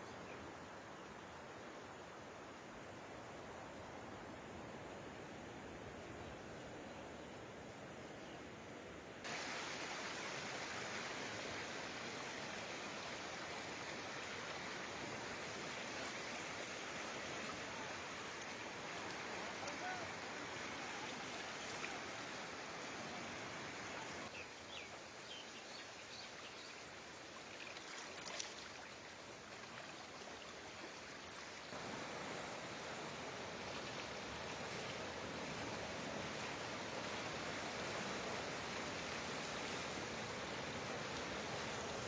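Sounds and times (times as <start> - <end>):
rushing floodwater: 9.2 - 42.0.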